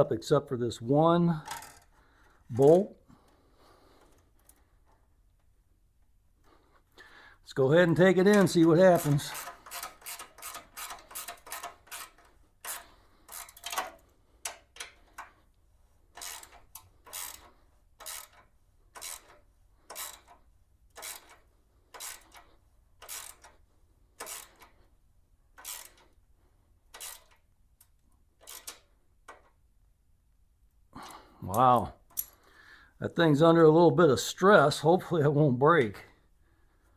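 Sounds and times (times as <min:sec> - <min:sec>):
ratchet wrench clicking: 0:01.4 - 0:02.0, 0:07.9 - 0:15.3, 0:16.1 - 0:23.6, 0:24.2 - 0:24.7, 0:25.6 - 0:26.2, 0:26.9 - 0:27.5, 0:28.4 - 0:29.5.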